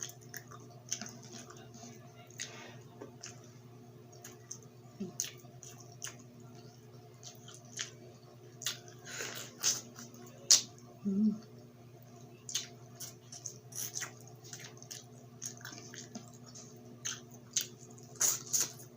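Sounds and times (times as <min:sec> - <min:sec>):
wet chewing and lip-smacking: 0:00.0 - 0:01.7, 0:02.3 - 0:10.8, 0:12.5 - 0:18.9
low steady hum: 0:00.0 - 0:18.9.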